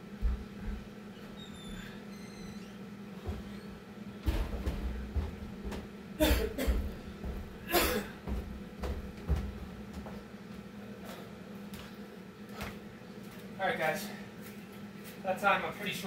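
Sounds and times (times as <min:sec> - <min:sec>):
man coughing: 0:06.2 - 0:06.9, 0:07.6 - 0:08.2.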